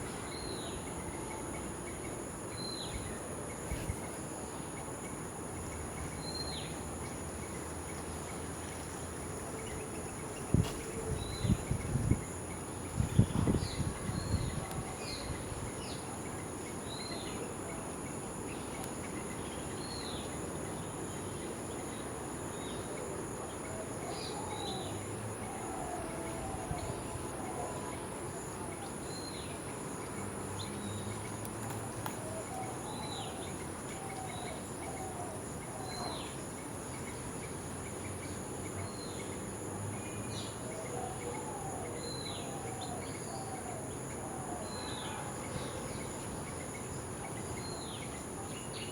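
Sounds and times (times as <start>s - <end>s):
insect chorus: 0.0s - 48.9s.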